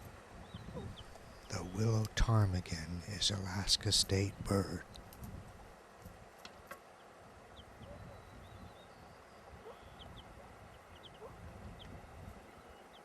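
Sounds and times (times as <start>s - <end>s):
bird peeps: 10.9s - 11.9s.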